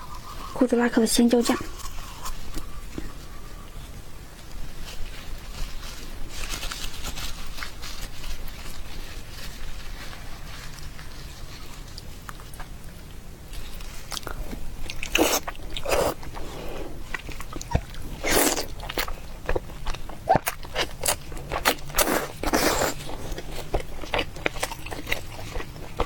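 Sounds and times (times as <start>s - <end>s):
person chewing food: 13.5s - 26.0s.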